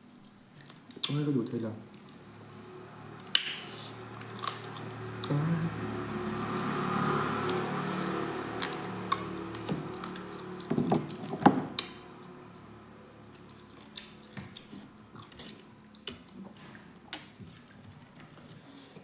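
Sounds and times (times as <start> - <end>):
low hum: 1.8 - 14.0
chewing meat off bone: 3.1 - 5.4, 6.0 - 12.3, 13.1 - 19.0.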